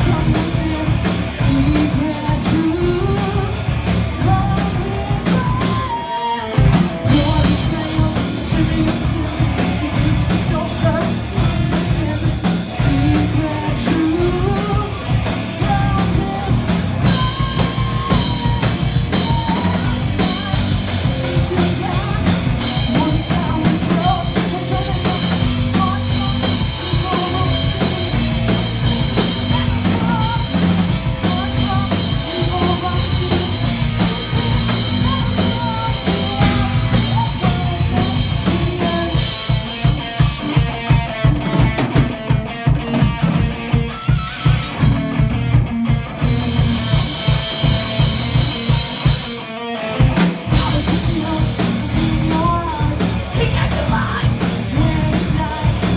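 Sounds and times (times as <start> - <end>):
fast drum strokes: 0.0 - 6.0, 6.6 - 49.4, 50.0 - 55.9
metal band playing live: 0.0 - 55.9.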